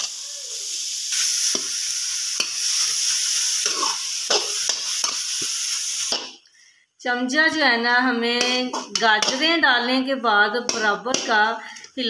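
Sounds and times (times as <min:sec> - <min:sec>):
carrots sizzling in a pan: 0:00.0 - 0:06.4
spoon scraping a metal pan: 0:03.6 - 0:06.3.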